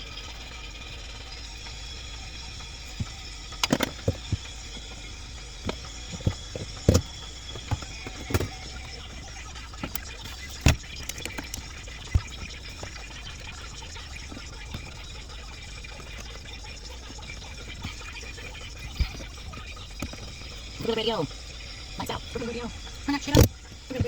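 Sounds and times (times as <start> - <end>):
steady mechanical hum: 0.0 - 24.0
clicks and knocks of tools: 3.6 - 4.4.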